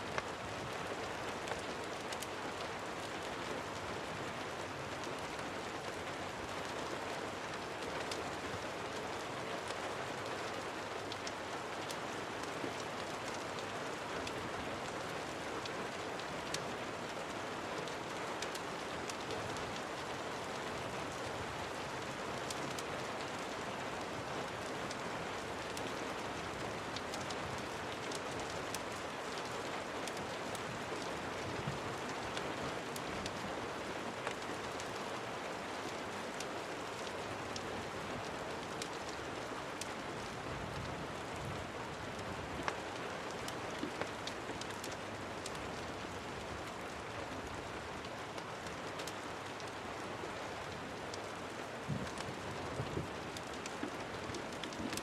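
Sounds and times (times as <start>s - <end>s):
steady rain hissing: 0.0s - 55.0s
small sharp ticks: 52.0s - 55.0s.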